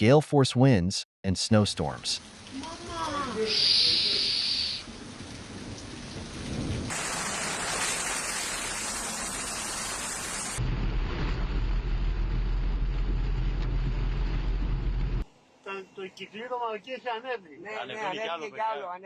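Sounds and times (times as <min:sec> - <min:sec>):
heavy rain pouring: 0:01.9 - 0:15.2
deep continuous rumble: 0:10.6 - 0:15.3.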